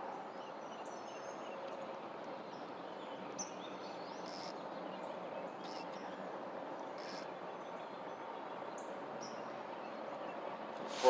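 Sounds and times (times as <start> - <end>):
small birds chirping: 0.4 - 10.4
background hiss: 10.6 - 11.0
short high hissy sounds: 10.8 - 11.0.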